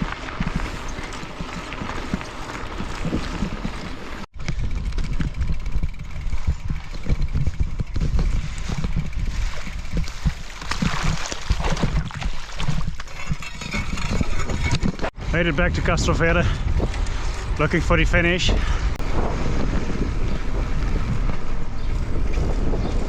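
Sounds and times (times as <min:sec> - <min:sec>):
bike rattling over rough ground: 0:00.0 - 0:23.0
wind buffeting microphone: 0:00.0 - 0:23.0.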